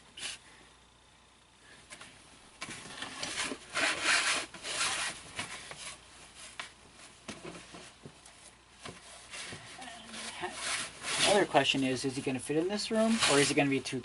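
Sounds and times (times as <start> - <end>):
costume rustling and rubbing: 2.7 - 8.0, 9.0 - 13.8.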